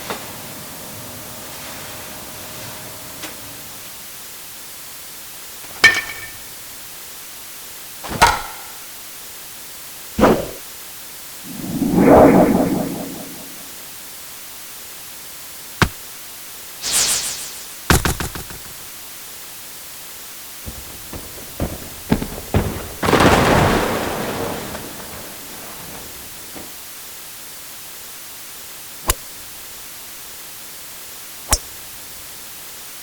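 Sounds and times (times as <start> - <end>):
steady hiss: 0.0 - 33.0
noisy swell: 11.4 - 13.9, 16.8 - 17.8
short high swish: 11.5 - 13.8, 16.8 - 17.8
sharp knocks and impacts: 17.9 - 18.8, 20.7 - 26.7.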